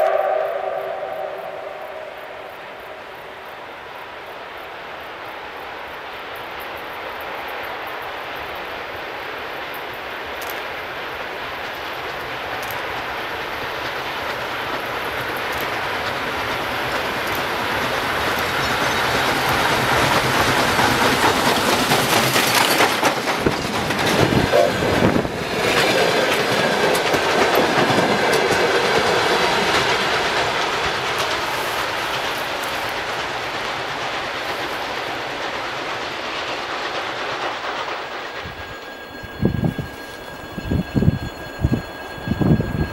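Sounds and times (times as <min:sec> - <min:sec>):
train passing: 0:00.0 - 0:42.9
wheels clattering over rail joints: 0:11.4 - 0:42.9.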